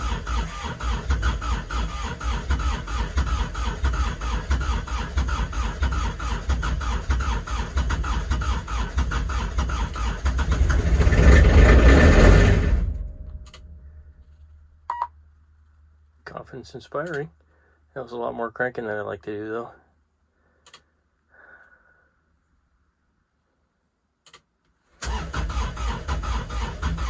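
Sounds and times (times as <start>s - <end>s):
diesel engine cranking: 0.0s - 14.2s, 25.0s - 27.0s.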